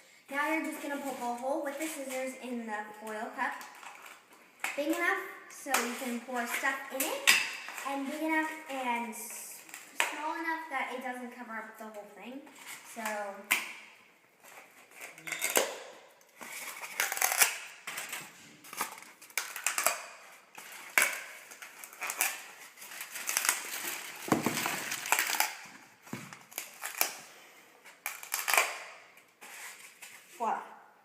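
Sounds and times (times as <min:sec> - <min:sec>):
foil crinkling: 0:16.4 - 0:27.2
scissors cutting through foil: 0:16.5 - 0:18.2, 0:20.6 - 0:25.6, 0:28.0 - 0:28.9.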